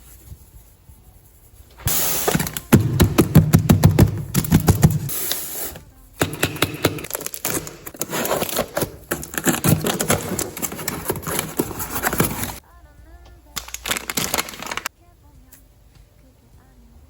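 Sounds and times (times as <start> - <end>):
packaging torn and crinkled: 7.0 - 12.6, 13.6 - 14.9.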